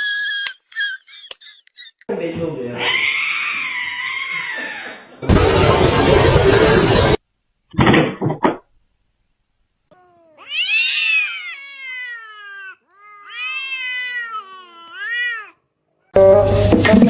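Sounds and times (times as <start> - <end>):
cat meowing: 10.0 - 15.6.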